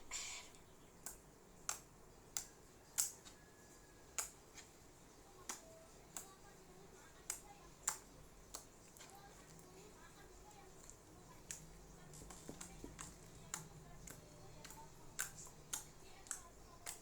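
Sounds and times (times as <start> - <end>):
slime clicking and popping: 1.0 - 3.4, 5.4 - 6.4, 7.2 - 9.0, 10.8 - 17.0.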